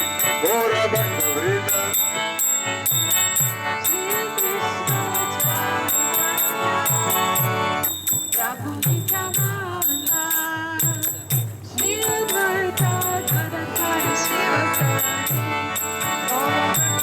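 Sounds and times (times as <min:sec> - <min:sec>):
sustained melody tones: 0:00.0 - 0:09.3, 0:11.8 - 0:17.0
hand cymbals clashing: 0:02.0 - 0:17.0.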